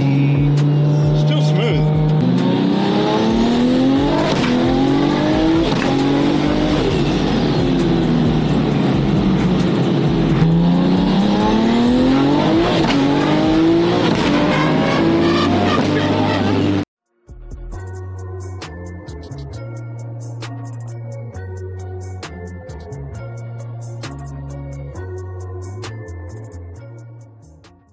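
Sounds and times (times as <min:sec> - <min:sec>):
car engine accelerating through gears: 0:00.0 - 0:16.9.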